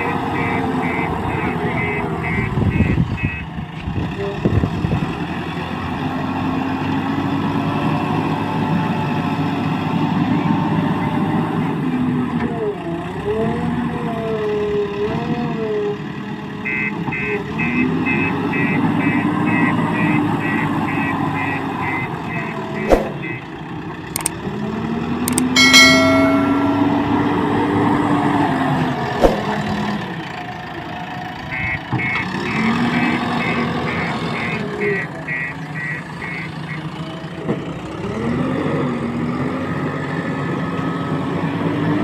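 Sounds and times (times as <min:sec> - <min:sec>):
diesel engines running: 0:00.0 - 0:25.6, 0:26.7 - 0:42.0
sharp click: 0:25.3 - 0:26.2.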